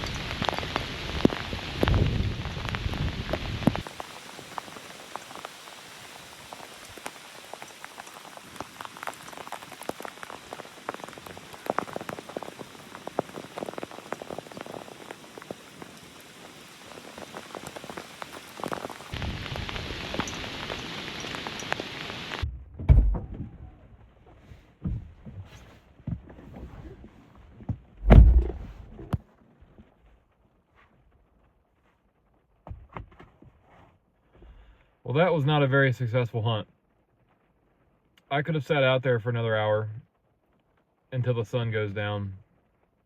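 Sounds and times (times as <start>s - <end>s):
rain pattering: 0.0s - 22.5s, 34.6s - 43.0s
wind rumbling on microphone: 0.0s - 29.2s
loud thump: 22.4s - 23.6s, 28.0s - 29.0s.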